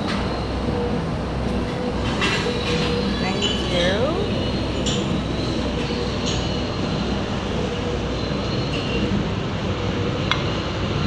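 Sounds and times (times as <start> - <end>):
machine hum and rumble: 0.0 - 11.0.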